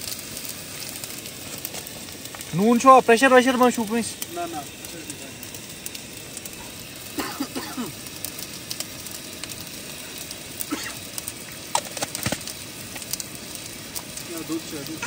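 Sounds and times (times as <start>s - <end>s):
masala sizzling in a wok: 0.0s - 15.0s
sharp clicks and knocks: 11.7s - 13.1s.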